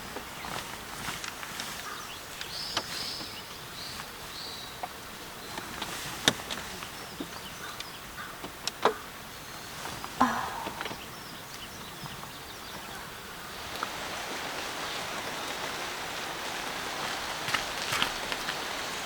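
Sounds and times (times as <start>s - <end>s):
steady outdoor background: 0.0s - 19.0s
short high bird calls: 10.2s - 13.3s.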